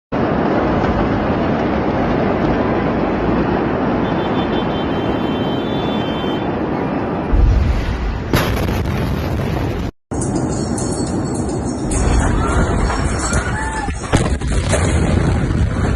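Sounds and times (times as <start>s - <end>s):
heavy low explosion boom: 7.0s - 9.9s, 14.0s - 15.9s
sharp crack: 7.3s - 9.9s.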